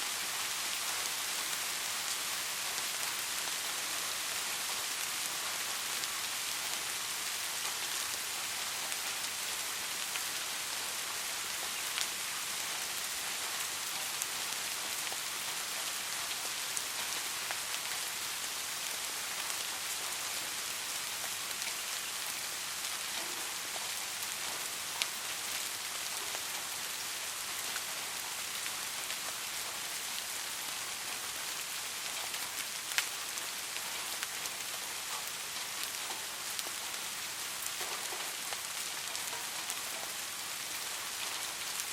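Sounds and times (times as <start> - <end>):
soft rain falling: 0.0 - 41.9.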